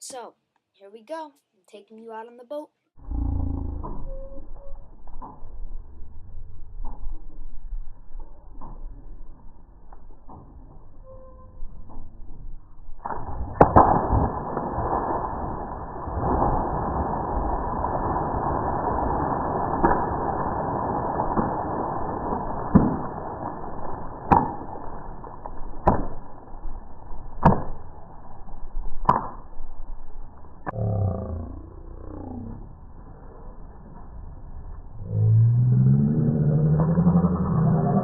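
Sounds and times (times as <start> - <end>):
wind and water rushing: 13.6 - 23.8.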